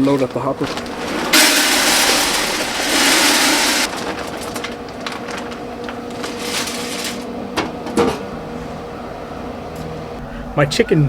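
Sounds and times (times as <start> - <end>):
wood pellets pouring into hopper: 0.0 - 7.4.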